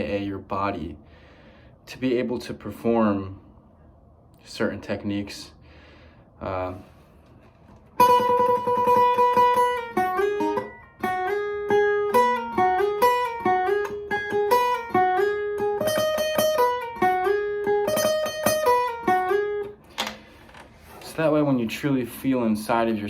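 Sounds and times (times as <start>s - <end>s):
guitar melody: 7.7s - 19.9s.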